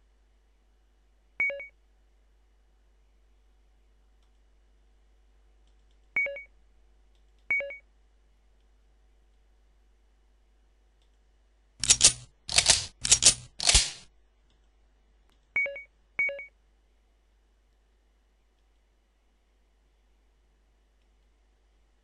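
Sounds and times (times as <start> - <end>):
short clattering bursts: 11.8 - 14.1.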